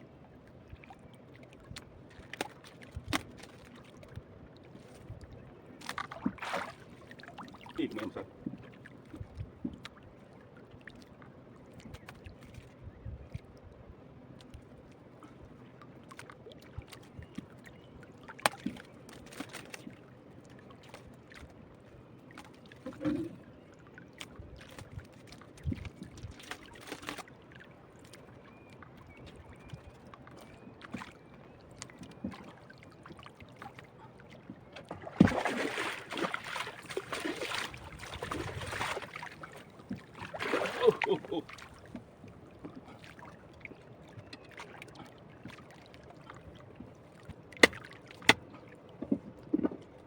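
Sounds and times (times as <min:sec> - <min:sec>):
rustling and splashing: 0:05.8 - 0:07.8, 0:18.4 - 0:20.1, 0:24.2 - 0:28.1, 0:34.4 - 0:43.3
knocks and clicks on boat: 0:46.8 - 0:49.9.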